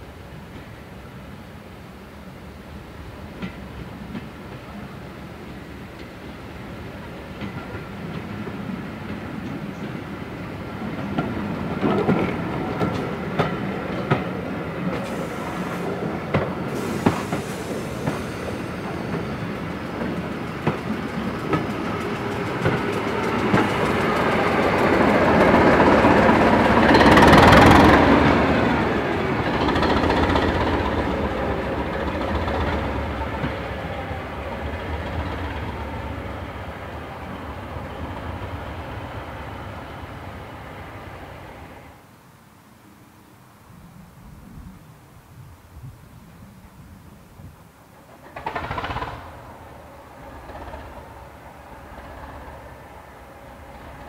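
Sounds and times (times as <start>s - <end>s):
train wheels clicking over rail joints: 10.9s - 33.7s, 48.0s - 54.0s.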